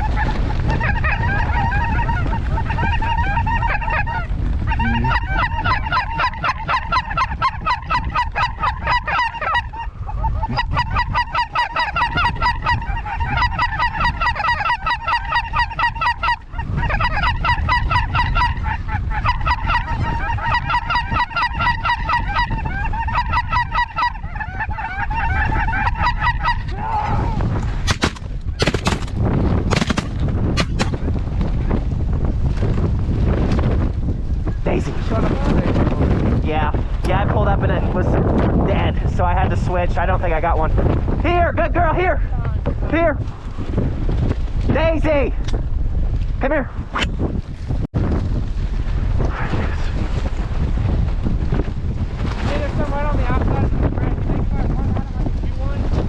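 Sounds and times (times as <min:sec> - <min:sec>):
geese honking: 0:00.0 - 0:26.8
wind rumble on microphone: 0:00.0 - 0:56.0
shotgun blasts: 0:27.8 - 0:31.0.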